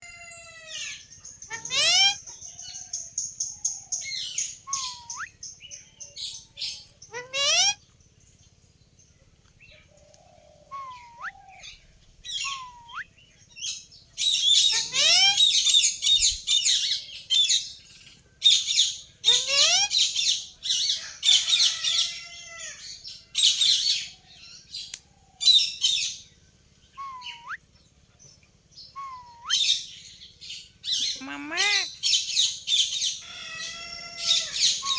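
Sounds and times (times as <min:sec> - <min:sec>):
parakeet whistles and screeches: 0:01.5 - 0:02.2.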